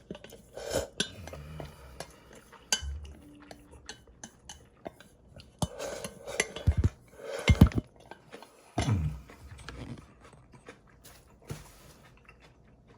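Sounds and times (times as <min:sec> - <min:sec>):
utensils clinking against bowl: 0:00.0 - 0:07.9.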